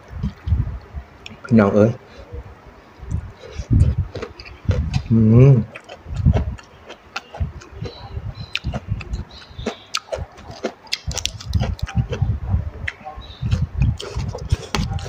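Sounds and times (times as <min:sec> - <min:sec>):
person chewing and smacking: 0:03.1 - 0:15.0.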